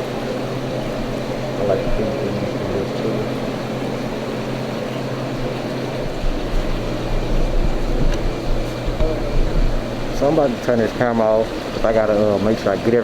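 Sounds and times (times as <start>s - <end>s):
water bubbling: 0.0s - 12.6s
aquarium pumps humming: 0.0s - 13.0s
low rumbling bumps: 5.4s - 10.6s.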